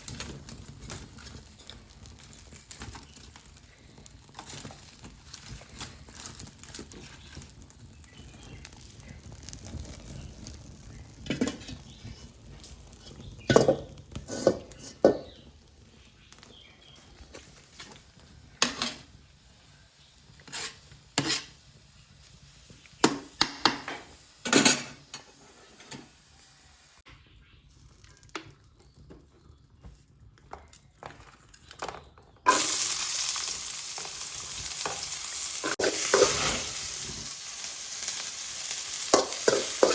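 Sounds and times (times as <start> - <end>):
food sizzling in hot oil: 0.0 - 28.4, 32.5 - 39.9
kitchen utensils and pans clinking: 13.0 - 15.4, 18.6 - 19.1, 20.4 - 21.6, 23.0 - 26.2, 31.8 - 33.0, 33.9 - 37.2, 39.0 - 39.9.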